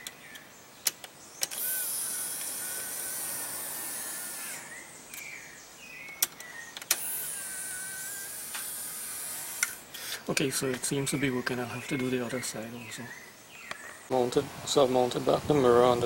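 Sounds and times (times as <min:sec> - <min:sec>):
sharp clicks: 0:00.0 - 0:03.4, 0:06.0 - 0:10.8
mirror motor whine: 0:01.4 - 0:11.4.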